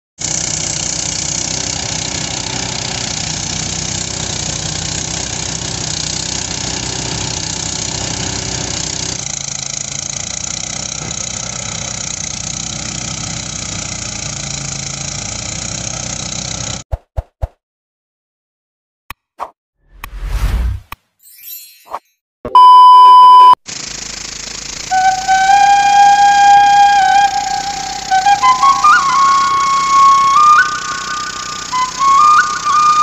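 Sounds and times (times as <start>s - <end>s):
threshing machine engine hum: 0.2s - 16.8s, 23.7s - 33.0s
threshing machine hiss: 23.7s - 33.0s.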